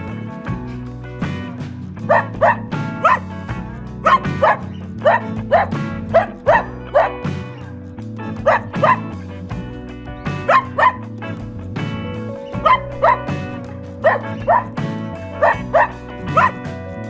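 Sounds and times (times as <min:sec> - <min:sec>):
background music with held notes: 0:00.0 - 0:17.0
dog barking: 0:02.0 - 0:07.6, 0:08.2 - 0:09.2, 0:10.3 - 0:11.1, 0:12.5 - 0:16.7.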